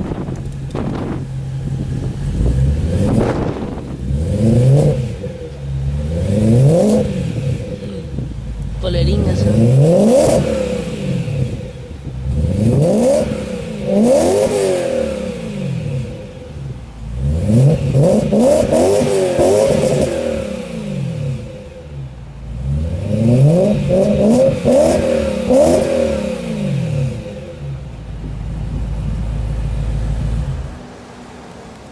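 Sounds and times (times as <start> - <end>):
car engine idling: 0.0 - 31.9
car engine revving: 0.0 - 31.9.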